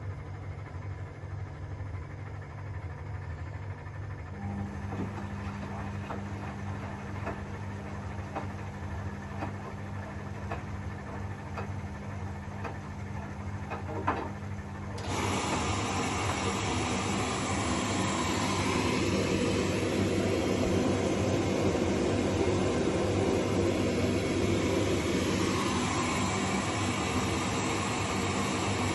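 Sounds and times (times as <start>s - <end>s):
washing machine motor hum: 0.0s - 28.9s
water rushing in washing machine: 3.1s - 28.9s
washing machine drum knocking: 4.7s - 14.5s.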